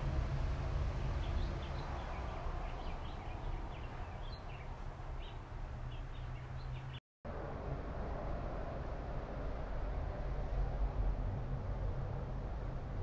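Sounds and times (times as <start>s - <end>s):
low outdoor rumble: 0.0s - 6.7s, 7.3s - 13.0s
small birds chirping: 1.2s - 7.0s.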